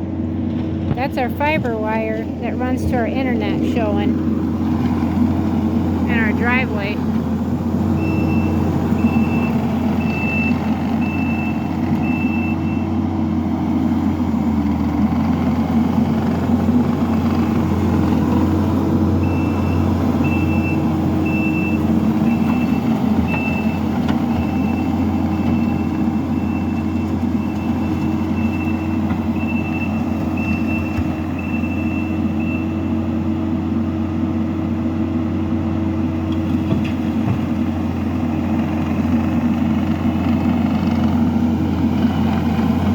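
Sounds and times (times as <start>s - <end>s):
diesel engine running: 0.0s - 42.9s
reverse alarm beeping: 8.0s - 12.9s, 19.2s - 32.8s.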